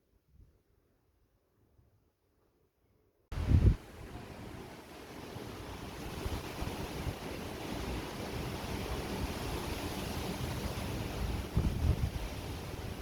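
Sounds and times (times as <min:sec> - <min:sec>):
low rumbling gusts: 0:03.3 - 0:04.6, 0:05.6 - 0:13.0.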